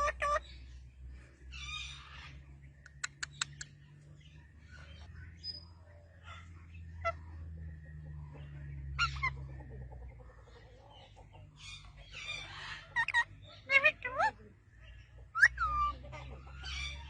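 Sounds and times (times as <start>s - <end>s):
low steady hum: 0.0s - 17.0s
parrot squawking: 11.6s - 14.4s, 15.4s - 16.0s.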